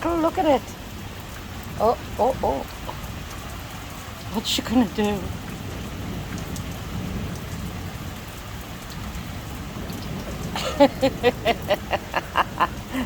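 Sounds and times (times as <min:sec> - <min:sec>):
heavy rain falling: 0:00.0 - 0:13.0
rumble of thunder: 0:05.1 - 0:13.0.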